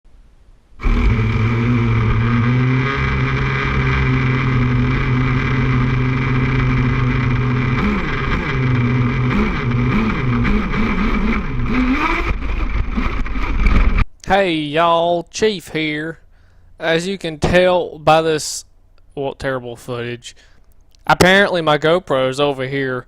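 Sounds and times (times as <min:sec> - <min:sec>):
small gas engine running: 0:00.8 - 0:14.0.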